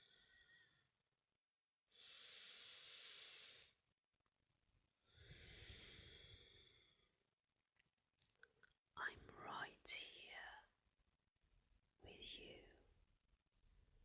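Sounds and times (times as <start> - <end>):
deep breaths: 2.0 - 3.8, 5.1 - 7.2.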